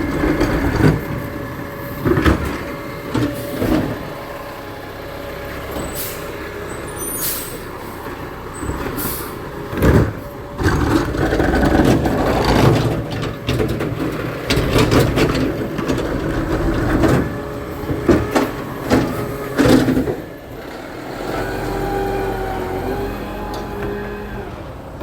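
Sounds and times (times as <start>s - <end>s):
engine hum with whine: 0.0s - 25.0s
truck engine running: 0.0s - 25.0s
garbage truck clattering bangs: 8.5s - 20.6s.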